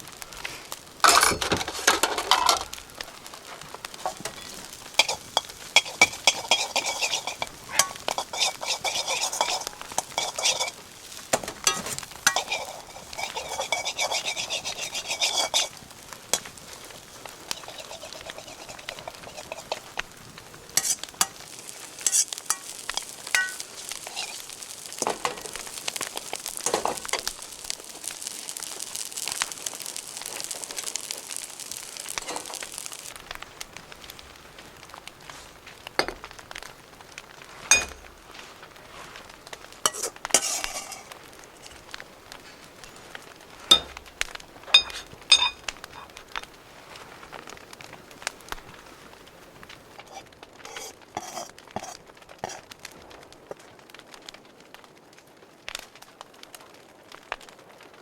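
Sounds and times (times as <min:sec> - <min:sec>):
rice sizzling in a wok: 0:00.0 - 0:58.0
metal utensil scraping a wok: 0:01.0 - 0:02.8, 0:04.0 - 0:20.0, 0:20.7 - 0:27.5, 0:28.1 - 0:33.1, 0:37.7 - 0:38.1, 0:39.8 - 0:41.9, 0:43.7 - 0:44.1, 0:44.7 - 0:46.1, 0:50.0 - 0:52.7.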